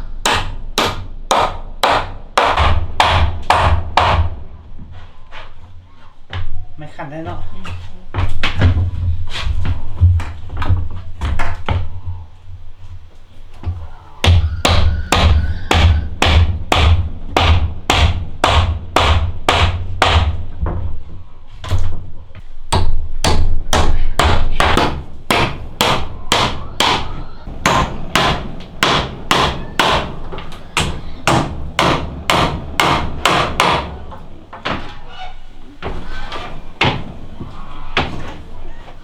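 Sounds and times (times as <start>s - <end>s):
hammer blows on wood: 0.0s - 4.4s, 13.6s - 20.4s, 22.6s - 39.0s.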